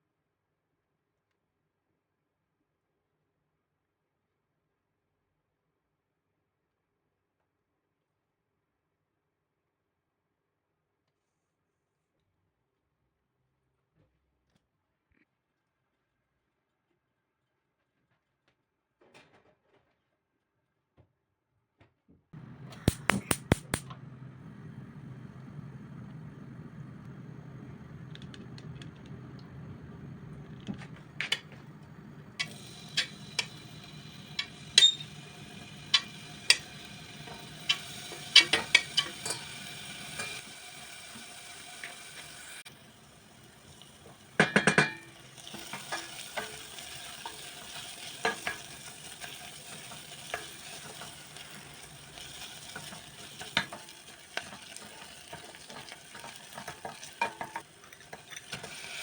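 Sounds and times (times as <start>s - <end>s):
faint hiss: 22.4s - 59.0s
utensil clinking in a bowl: 32.4s - 40.4s, 44.3s - 59.0s.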